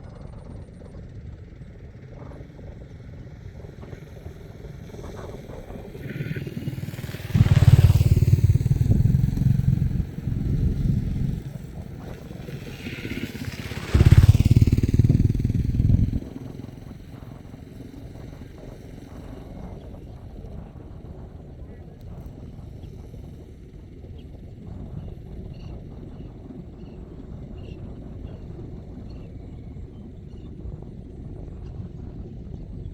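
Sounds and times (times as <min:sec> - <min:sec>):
motor vehicles passing: 0:04.5 - 0:19.0.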